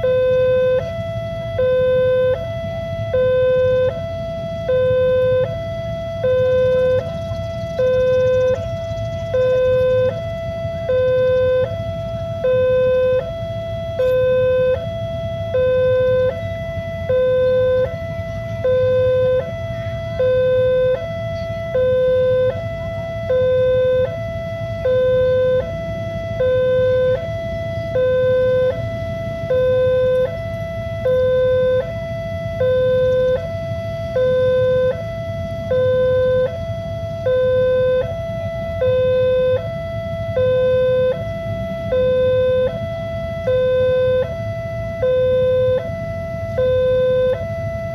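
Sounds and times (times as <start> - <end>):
level crossing two-tone alarm: 0.0 - 47.9
steady low rumble: 0.0 - 47.9.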